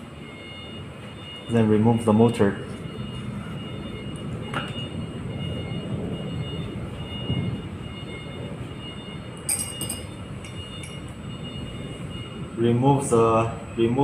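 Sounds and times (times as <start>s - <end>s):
low machinery rumble: 0.0s - 14.0s
metallic clicks and clinks: 9.5s - 11.0s.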